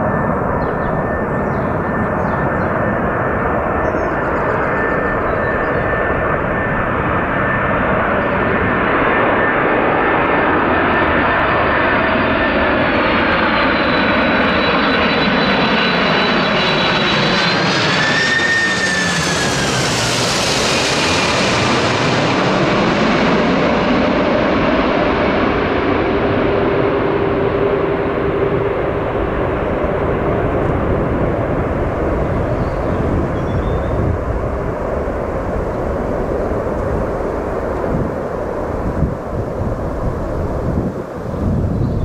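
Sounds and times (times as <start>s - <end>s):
jet airliner engine roar: 0.0s - 42.0s
high fan whine: 26.9s - 42.0s.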